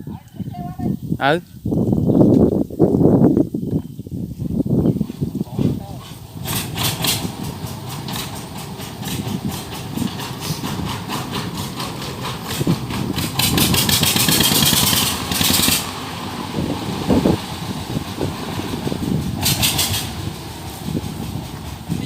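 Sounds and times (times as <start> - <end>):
machine engine clattering: 5.0 - 22.0
hissing rush: 5.1 - 22.0.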